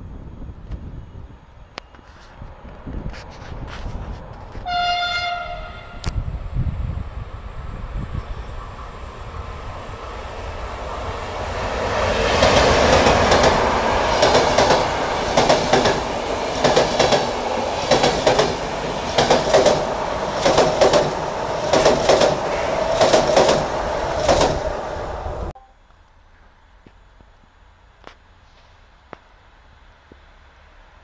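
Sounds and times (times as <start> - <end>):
train passing: 0.0 - 25.6
wheels clacking over rail joint: 12.3 - 24.7.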